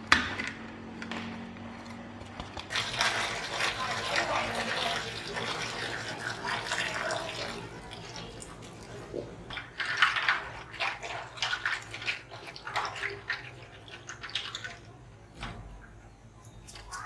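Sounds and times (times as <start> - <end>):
water splashing and sloshing: 2.6 - 16.0.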